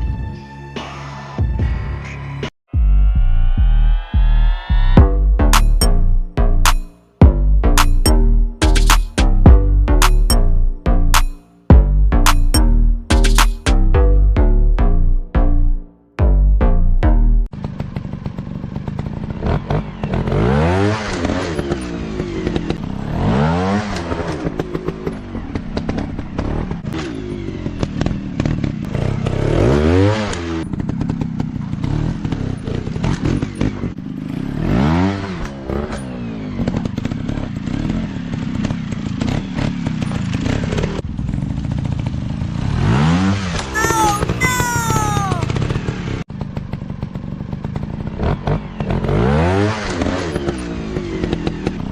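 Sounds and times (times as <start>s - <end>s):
dirt bike engines revving: 42.8s - 46.2s.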